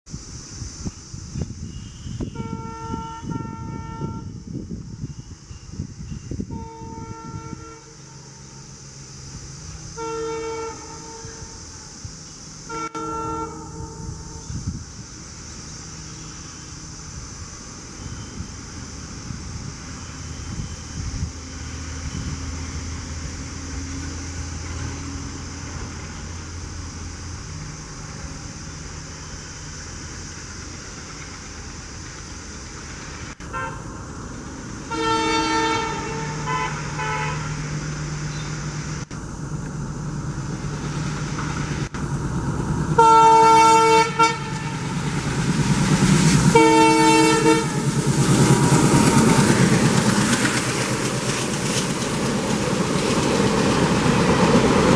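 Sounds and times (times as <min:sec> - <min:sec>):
diesel locomotive engine running: 0:00.1 - 0:54.9
rumble of passing train: 0:00.1 - 0:54.9
locomotive horn blasts: 0:01.6 - 0:04.4, 0:06.3 - 0:08.7, 0:09.9 - 0:11.6, 0:12.7 - 0:14.7, 0:33.4 - 0:33.9, 0:34.9 - 0:37.7, 0:43.0 - 0:45.1, 0:46.5 - 0:48.0.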